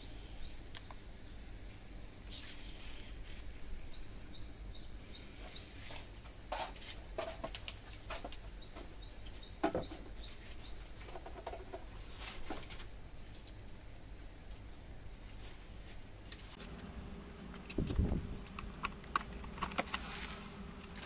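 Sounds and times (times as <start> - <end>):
bird rising chirps: 16.6 - 21.0.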